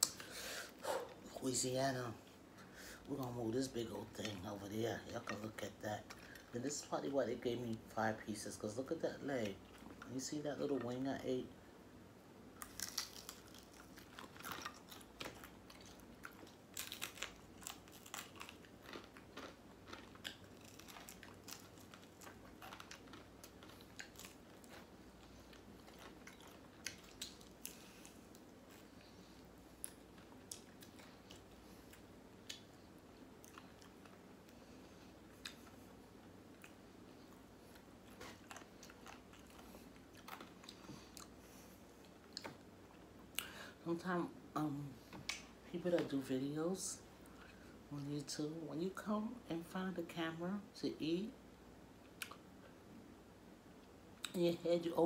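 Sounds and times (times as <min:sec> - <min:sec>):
crunching fried chicken: 0:12.6 - 0:29.0.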